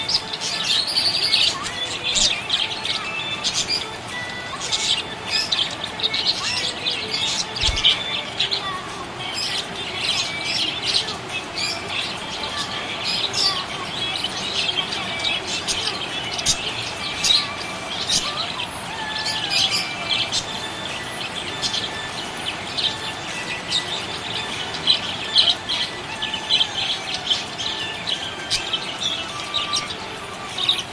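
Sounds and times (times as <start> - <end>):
budgerigar chirping and warbling: 0.0 - 30.9.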